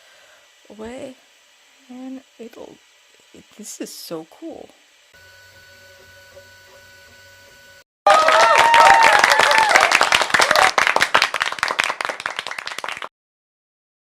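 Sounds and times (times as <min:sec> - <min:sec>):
faint steady hum: 0:00.0 - 0:07.8
crowd applauding and cheering: 0:08.1 - 0:13.1.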